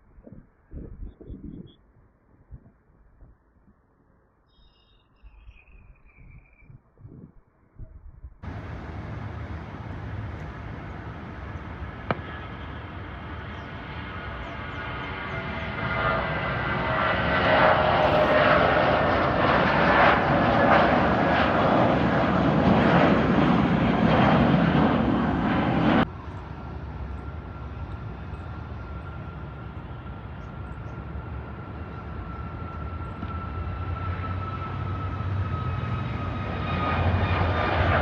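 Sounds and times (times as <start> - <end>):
jet engines whining: 8.4 - 38.0.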